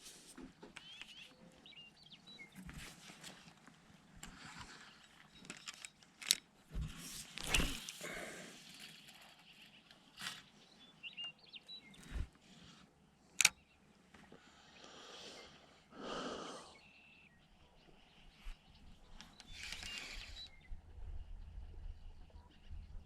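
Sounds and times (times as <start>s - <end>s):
faint bird chirps: 0.8s - 2.8s, 13.5s - 23.0s.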